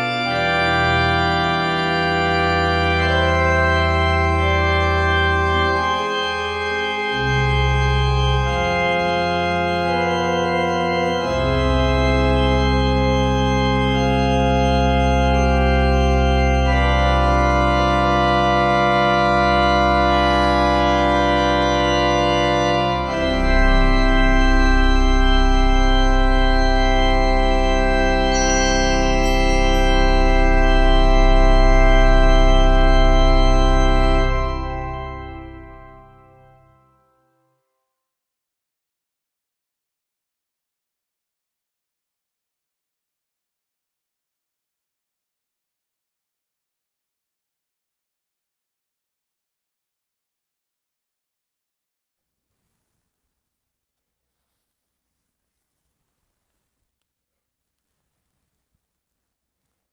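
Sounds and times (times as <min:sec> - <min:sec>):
church organ chords: 0:00.0 - 0:37.0.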